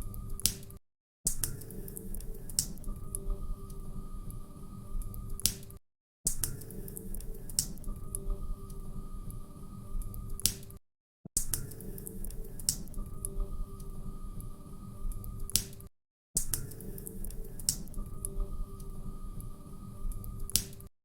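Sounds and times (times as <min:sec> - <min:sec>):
faint steady hum: 0:01.8 - 0:05.5, 0:06.8 - 0:10.5, 0:11.9 - 0:15.6, 0:16.9 - 0:20.6.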